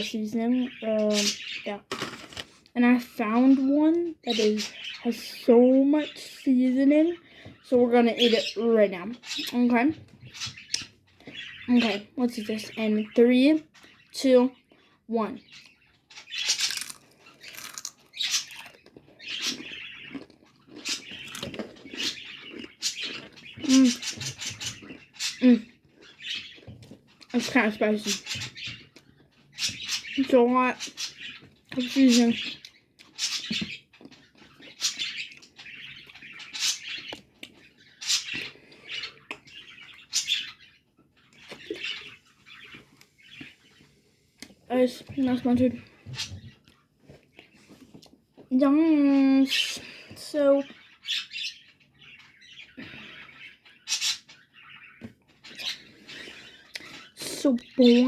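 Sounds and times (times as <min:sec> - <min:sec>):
crunching tortilla chip: 0:16.6 - 0:19.0.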